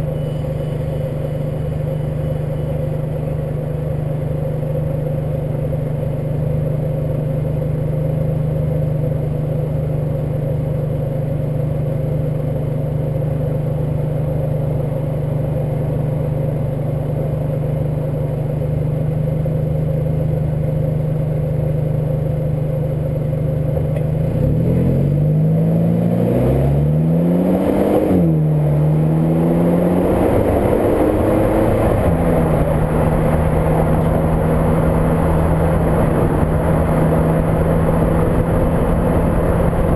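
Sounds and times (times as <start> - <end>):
car engine cruising: 0.0 - 39.9
road noise: 0.0 - 39.9.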